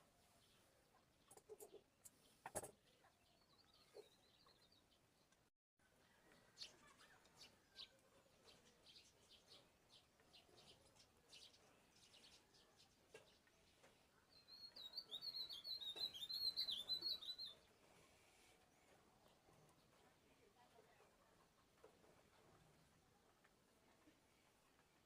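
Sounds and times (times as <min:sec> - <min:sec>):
warbling birdsong: 0:06.0 - 0:17.8
short high bird chirps: 0:14.5 - 0:17.6.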